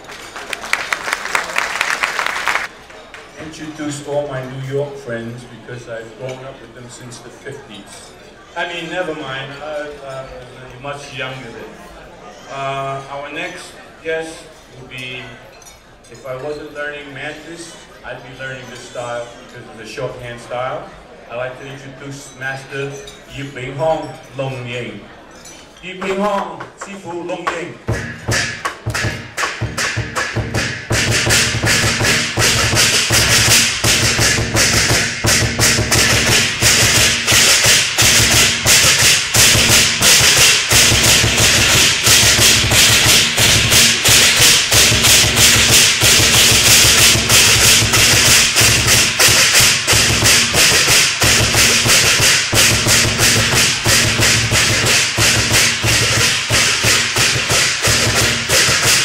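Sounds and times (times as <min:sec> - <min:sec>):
fast percussion music: 0:26.0 - 0:59.0.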